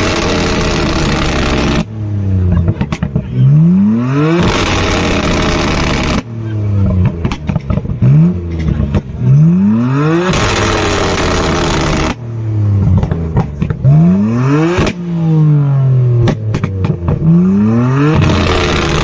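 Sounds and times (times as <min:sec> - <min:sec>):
loud rushing: 0:00.0 - 0:19.0
sharp exhaust pops: 0:00.0 - 0:19.0
sports car engine revving: 0:00.0 - 0:19.0.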